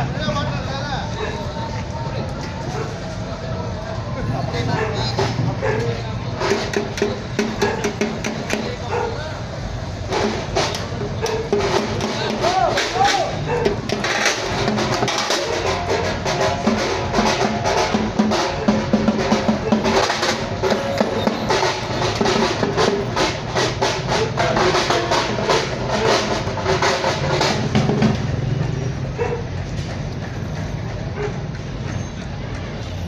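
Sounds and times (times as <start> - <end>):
temple drums played fast: 5.2 - 29.7.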